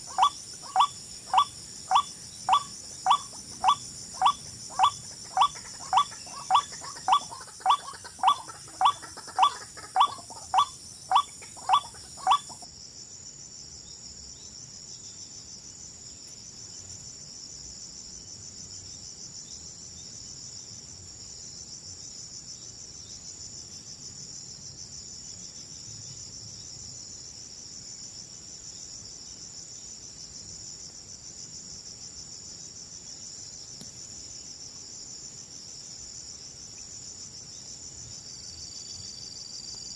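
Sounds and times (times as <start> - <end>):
sharp animal call: 0.0 - 12.6
crickets trilling: 0.0 - 39.9.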